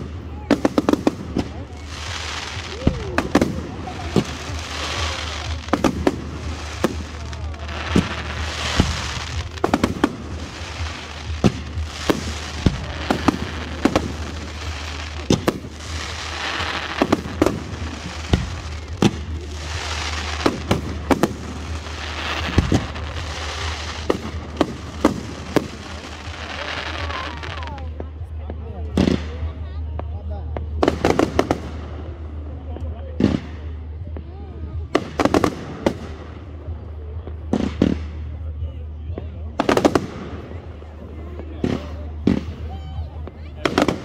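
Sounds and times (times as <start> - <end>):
fireworks hissing: 0.0 - 27.9
fireworks bursting bangs: 0.0 - 38.6, 39.3 - 44.0.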